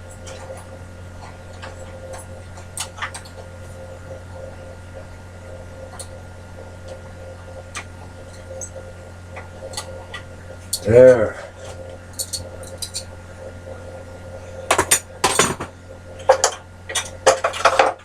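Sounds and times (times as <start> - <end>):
steady low hum: 0.0 - 18.0
metal tools clicking and tapping: 12.1 - 13.1.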